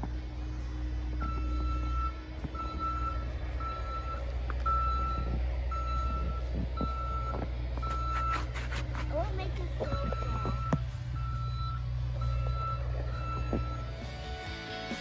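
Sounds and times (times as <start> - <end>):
low rumble: 0.0 - 8.2, 9.4 - 14.5
reversing alarm beeping: 0.7 - 8.6, 9.8 - 14.5.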